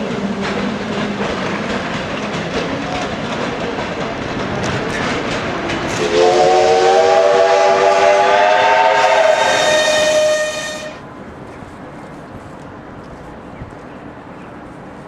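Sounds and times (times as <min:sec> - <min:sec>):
train rolling clatter: 0:00.0 - 0:15.0
steam hiss: 0:05.9 - 0:11.0
steam locomotive whistle: 0:05.9 - 0:11.0.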